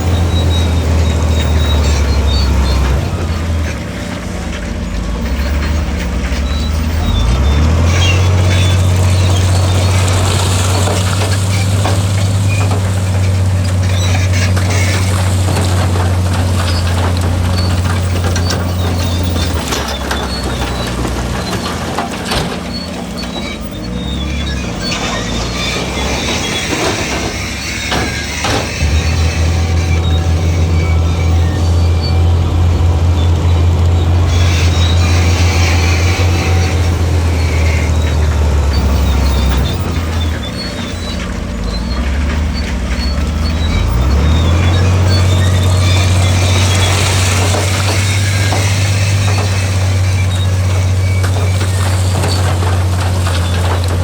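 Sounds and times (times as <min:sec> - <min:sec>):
heavy diesel engine droning: 0:00.0 - 0:54.0
clicks and rattles: 0:33.8 - 0:54.0.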